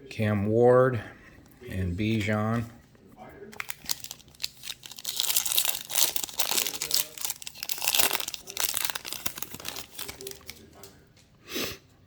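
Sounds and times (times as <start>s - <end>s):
cellophane wrapper crinkling: 3.5s - 10.9s.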